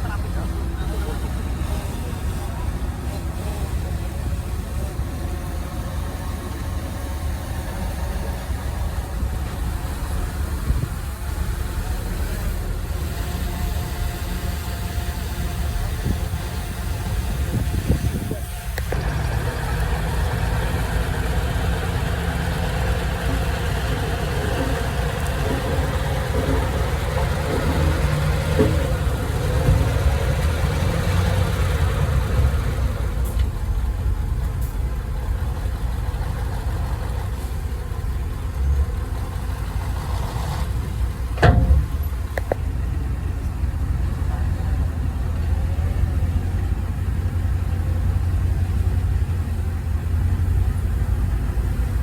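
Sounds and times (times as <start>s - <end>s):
heavy vehicle engine rumbling: 0.0s - 52.0s.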